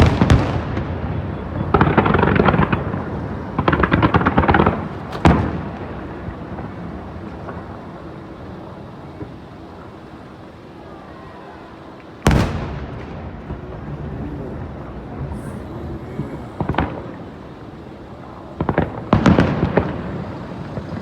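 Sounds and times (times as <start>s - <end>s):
firework bang: 0.0s - 10.2s, 12.2s - 21.0s
fireworks crackling: 0.0s - 21.0s.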